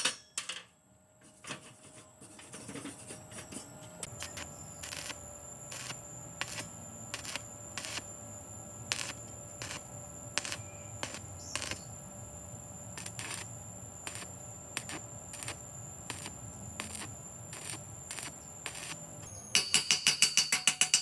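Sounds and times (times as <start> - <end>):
faint steady high tone: 19.2 - 19.7.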